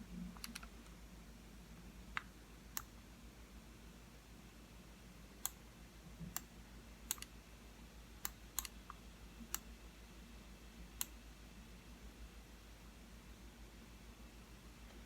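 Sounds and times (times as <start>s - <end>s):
computer mouse clicking: 0.4s - 1.0s, 5.4s - 5.6s, 7.1s - 7.3s, 8.2s - 9.7s, 11.0s - 11.2s.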